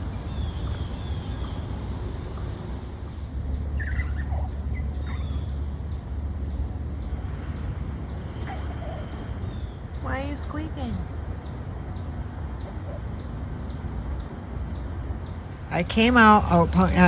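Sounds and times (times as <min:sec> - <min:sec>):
small animal squeaking: 0:03.7 - 0:05.9, 0:08.3 - 0:09.8.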